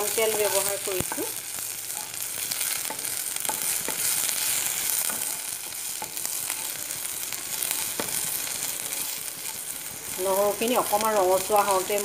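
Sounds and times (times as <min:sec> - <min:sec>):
garlic sizzling in oil: 0:00.0 - 0:12.0
spatula scraping pan: 0:01.9 - 0:10.1.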